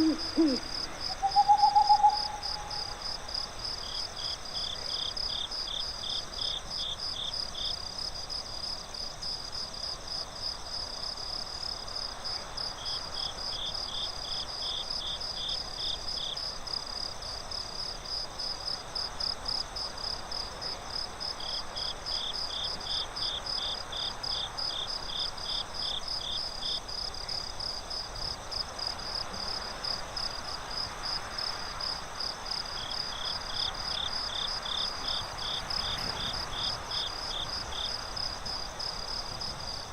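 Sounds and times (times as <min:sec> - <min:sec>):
crickets trilling: 0:00.0 - 0:07.0, 0:20.9 - 0:39.9
forest background hiss: 0:00.0 - 0:39.9
lower-pitched cricket chirping: 0:00.0 - 0:39.9.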